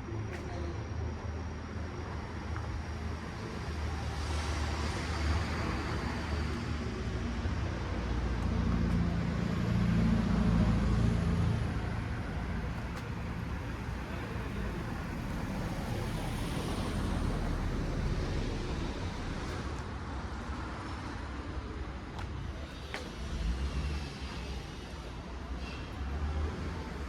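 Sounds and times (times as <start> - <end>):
road noise hum: 0.0 - 27.0
motor vehicle engine: 4.7 - 21.0.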